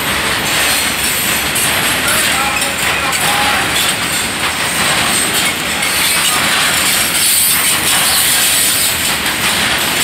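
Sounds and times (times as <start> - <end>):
freight train wheels rolling on rails: 0.0 - 10.0.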